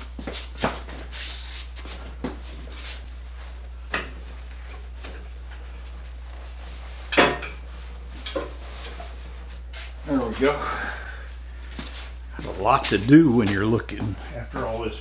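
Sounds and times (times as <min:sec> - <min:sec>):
metal clanks and knocks: 0:07.1 - 0:07.6.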